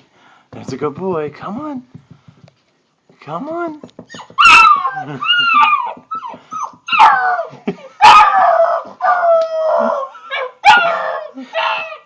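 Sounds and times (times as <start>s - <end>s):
puppy howling: 4.1s - 12.0s.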